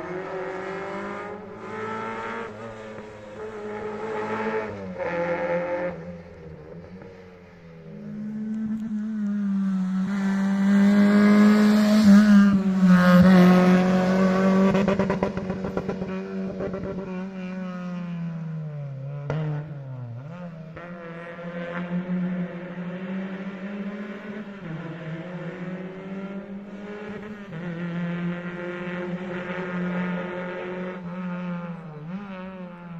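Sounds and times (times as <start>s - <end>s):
rally car engine at high revs: 0.0s - 32.9s.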